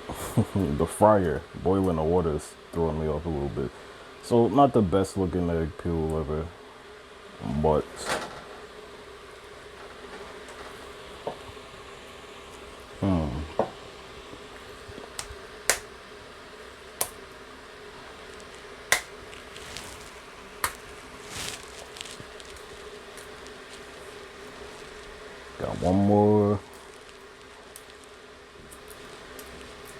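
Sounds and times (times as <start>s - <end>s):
water boiling in a fryer: 0.0s - 29.9s
eggshell cracking and picking: 14.9s - 16.0s, 16.9s - 17.4s, 18.4s - 23.9s, 28.7s - 29.9s.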